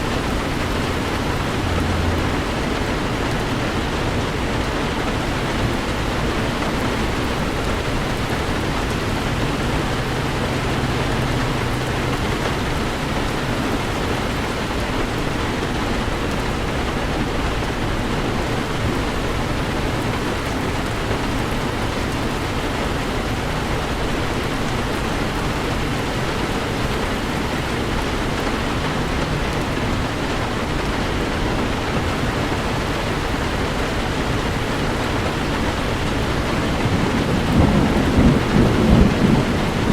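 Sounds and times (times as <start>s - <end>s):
heavy rain on a vehicle: 0.0s - 39.9s.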